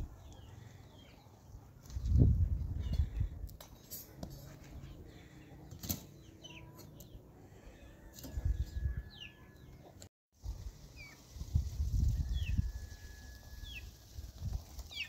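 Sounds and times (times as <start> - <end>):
wind rumble on microphone: 1.9 - 3.5, 8.3 - 9.2, 10.4 - 14.8.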